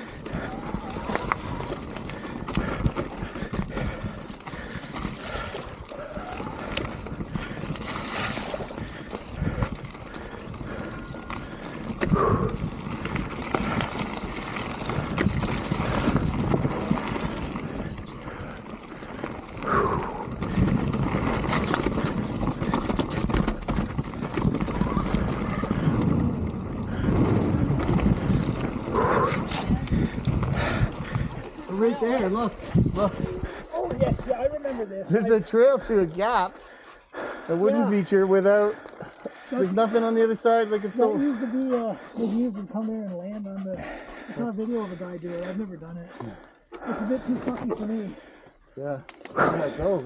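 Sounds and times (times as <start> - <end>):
bike knocking and rattling: 0.0 - 34.8, 35.4 - 40.5
tyre noise: 0.0 - 41.1
mountain bike rolling on trail: 0.0 - 50.0.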